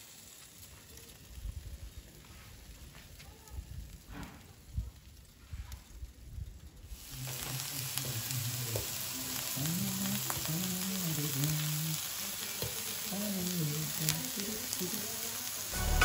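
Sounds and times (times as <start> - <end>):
vegetables sizzling in oil: 0.0 - 5.8, 6.7 - 16.0
slow low melody: 15.8 - 16.0.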